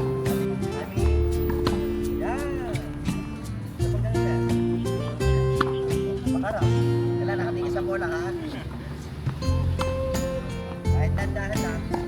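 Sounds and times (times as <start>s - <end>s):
music with held notes and bass: 0.0s - 12.0s.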